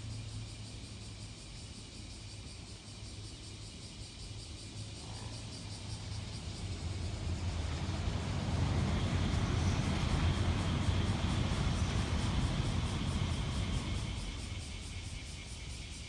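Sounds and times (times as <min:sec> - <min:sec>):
train rushing on rails: 0:04.4 - 0:16.0.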